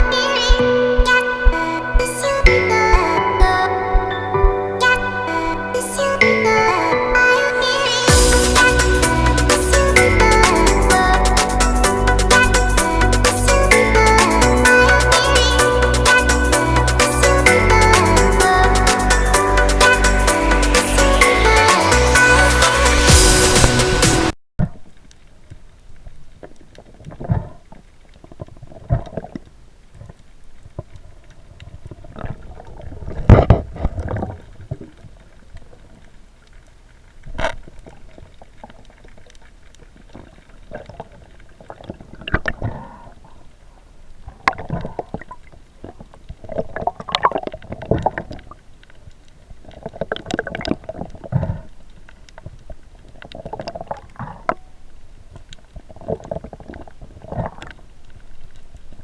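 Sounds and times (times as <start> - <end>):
muffled underwater gurgling: 0.0 - 18.6, 49.6 - 58.2.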